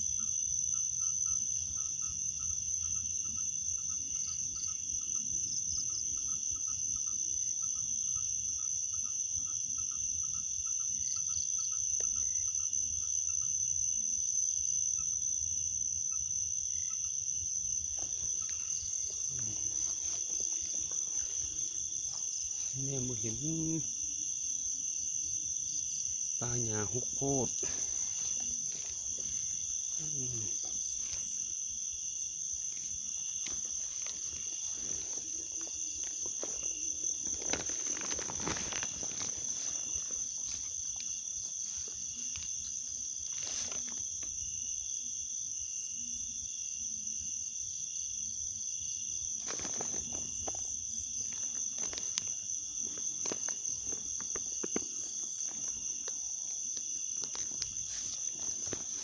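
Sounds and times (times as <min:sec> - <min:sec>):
crickets chirping: 0:00.0 - 0:59.0
rustling or splashing: 0:32.7 - 0:42.3.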